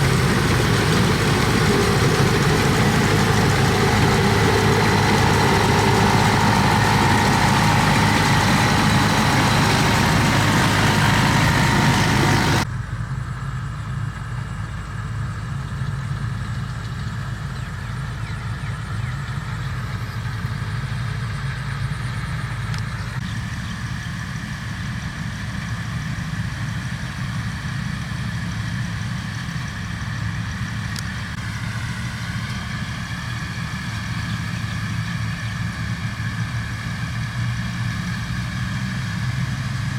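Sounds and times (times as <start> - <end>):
harvester engine running: 0.0 - 39.9.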